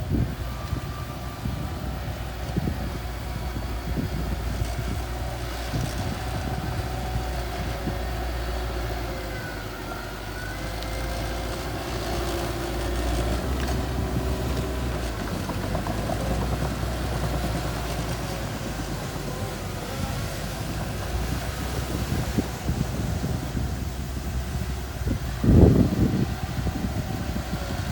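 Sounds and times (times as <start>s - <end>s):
bulldozer diesel engine running: 0.0s - 27.9s.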